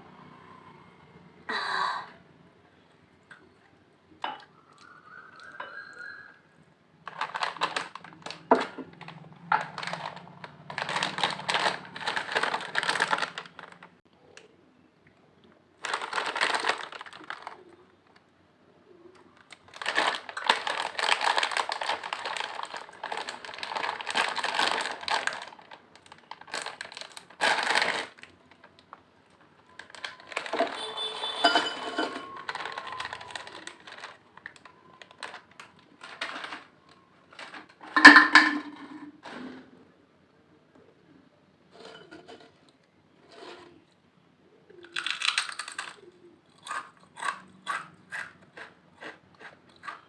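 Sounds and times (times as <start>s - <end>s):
potato chips crunching: 7.1s - 13.9s, 15.8s - 17.7s, 19.4s - 28.7s, 32.2s - 36.7s, 44.8s - 50.0s.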